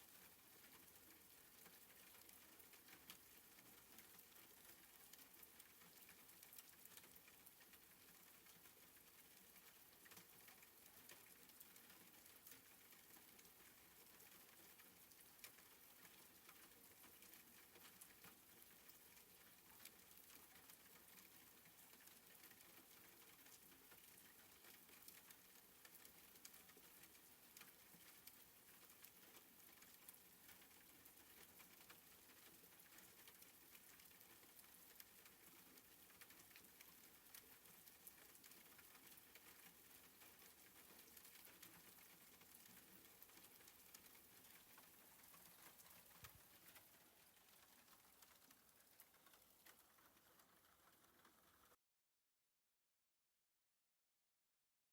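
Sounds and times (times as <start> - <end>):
faint soft rain: 0.0 - 51.8
single raindrop ticks: 8.4 - 51.8.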